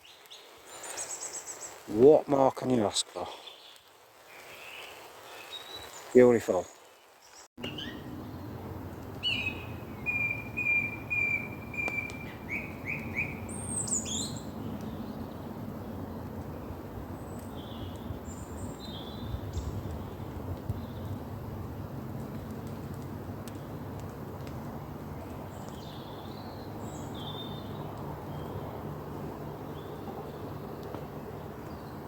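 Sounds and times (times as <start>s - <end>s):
birds whistling: 7.6s - 8.5s, 9.1s - 15.3s
rain hissing: 7.6s - 32.0s.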